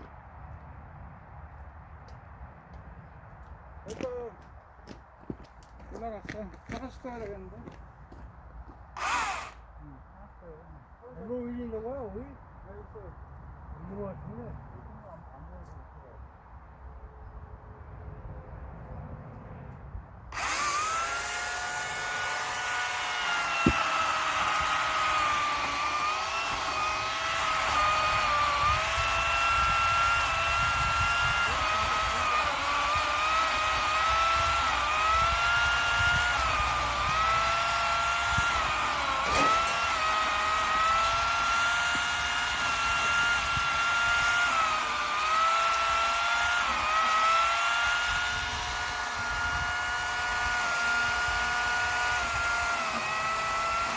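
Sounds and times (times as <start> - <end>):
power saw cutting wood: 9.0 - 9.7, 20.3 - 53.9.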